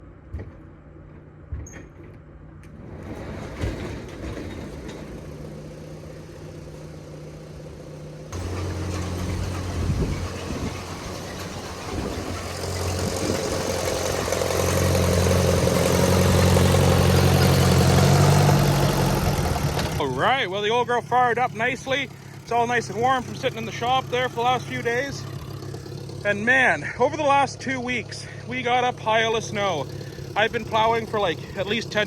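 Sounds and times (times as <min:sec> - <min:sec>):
tractor engine starting and running: 0:00.0 - 0:32.0.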